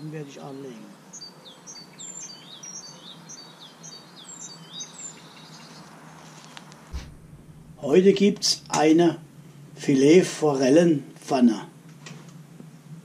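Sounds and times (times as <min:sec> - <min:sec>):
faint outdoor background noise: 0:00.0 - 0:13.0.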